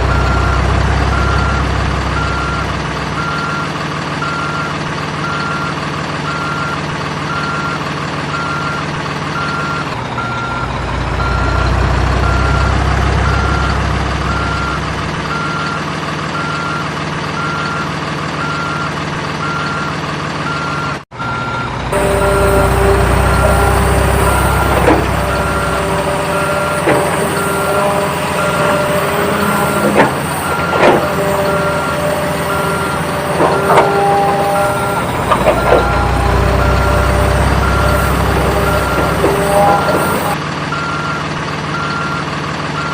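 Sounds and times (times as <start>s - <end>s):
reversing beep: 0.0s - 42.9s
simulated engine rumble: 0.0s - 42.9s
short electronic tones: 21.3s - 40.4s.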